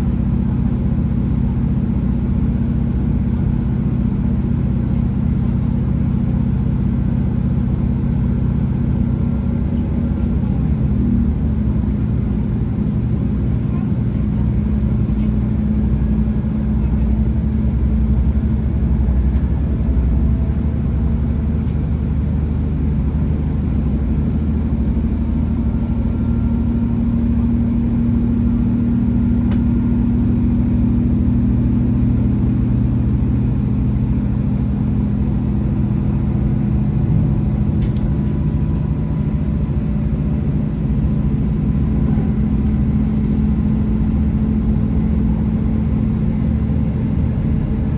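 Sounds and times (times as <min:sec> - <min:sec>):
train diesel engines droning: 0:00.0 - 0:47.9
low rumble: 0:08.7 - 0:47.9.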